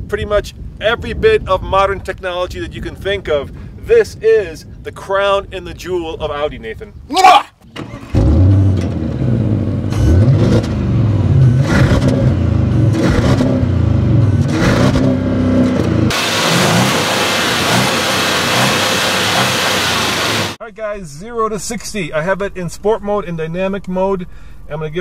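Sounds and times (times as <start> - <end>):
car engine revving: 7.8 - 20.6
car engine idling: 15.9 - 20.6.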